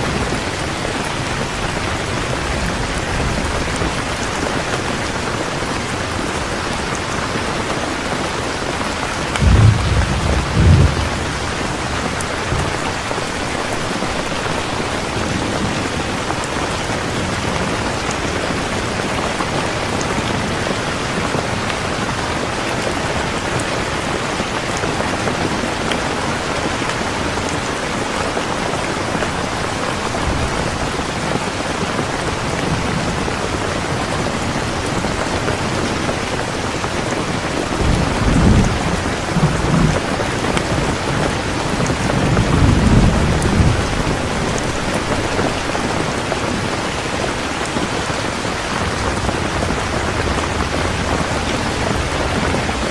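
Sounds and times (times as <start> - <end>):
heavy rain: 0.0 - 52.9
low thunder rumble: 9.0 - 14.6, 41.8 - 45.6.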